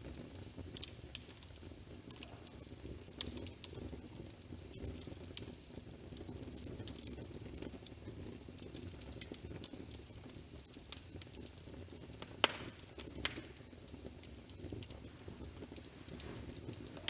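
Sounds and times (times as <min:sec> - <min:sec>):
fire crackling: 0:00.0 - 0:17.0
sharp pops: 0:12.3 - 0:13.6.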